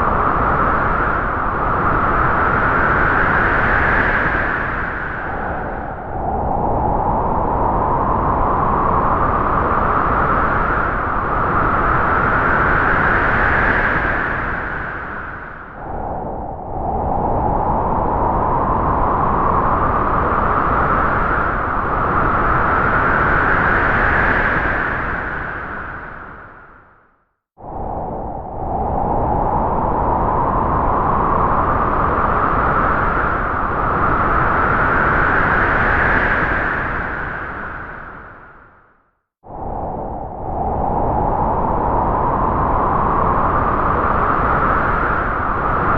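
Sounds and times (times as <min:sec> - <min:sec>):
wind howling through trees: 0:00.0 - 0:45.9.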